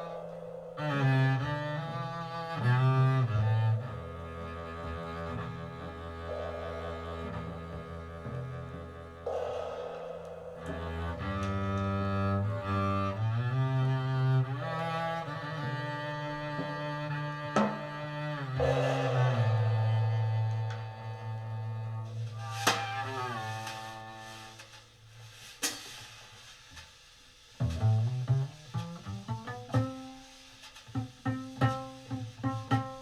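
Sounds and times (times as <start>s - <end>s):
sharp percussive strikes: 0.0s - 13.2s, 18.5s - 21.2s
bowed double bass melody: 0.8s - 9.4s, 27.6s - 30.1s.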